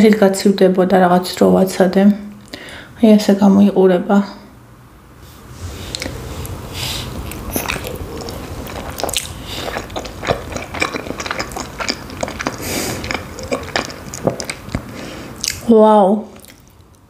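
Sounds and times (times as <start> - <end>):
biting into soft dough: 5.9 - 15.6
wet chewing and lip smacking: 5.9 - 15.7, 16.3 - 17.0.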